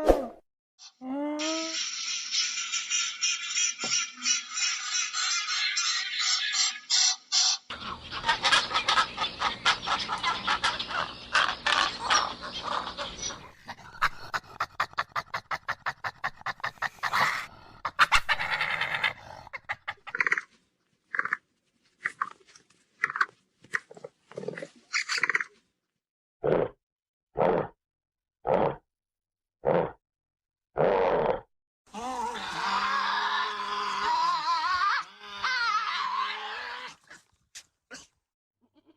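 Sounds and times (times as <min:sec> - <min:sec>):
animal calls: 0:07.7 - 0:20.5, 0:32.0 - 0:37.3.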